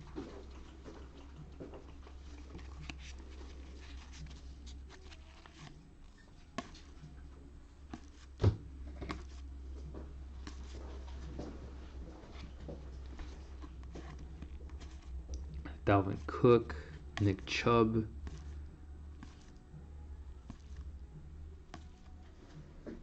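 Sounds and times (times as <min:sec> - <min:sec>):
low steady hum: 0:00.0 - 0:23.0
cards rustling and clicking: 0:02.2 - 0:23.0.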